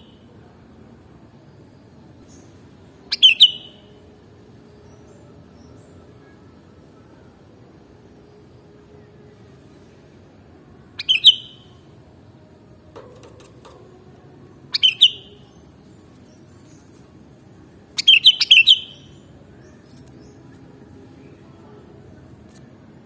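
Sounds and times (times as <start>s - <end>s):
bird chirping: 3.1s - 3.8s, 11.0s - 11.8s, 14.7s - 17.0s, 18.0s - 20.6s.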